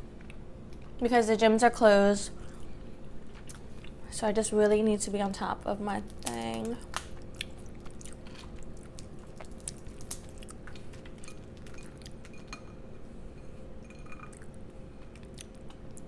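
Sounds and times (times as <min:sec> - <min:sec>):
steady low hum: 0:00.0 - 0:16.0
chewing and biting: 0:06.1 - 0:12.6.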